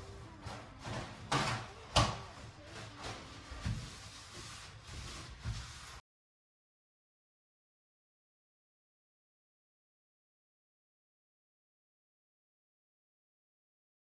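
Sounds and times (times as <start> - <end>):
kitchen items knocking and bumping: 0.0 - 4.2.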